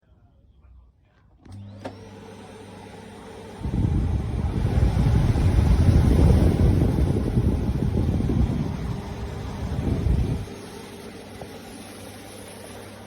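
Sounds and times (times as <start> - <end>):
vacuum cleaner motor whine: 1.4 - 13.0
vacuum cleaner switch click: 1.5 - 2.2
loud rough rumbling noise: 3.7 - 10.5.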